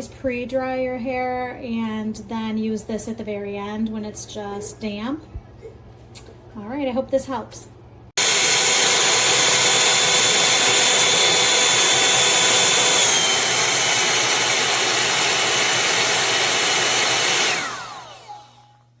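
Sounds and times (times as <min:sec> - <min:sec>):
hot-air dryer brush running: 0:08.2 - 0:18.6.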